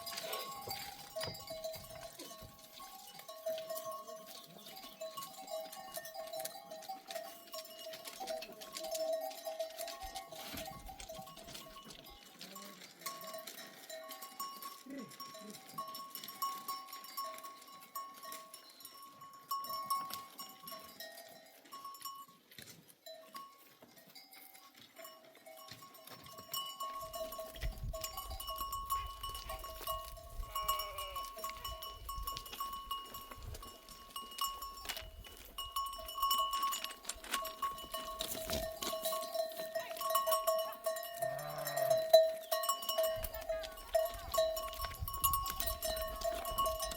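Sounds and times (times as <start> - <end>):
sheep bells clinking: 0.0 - 46.9.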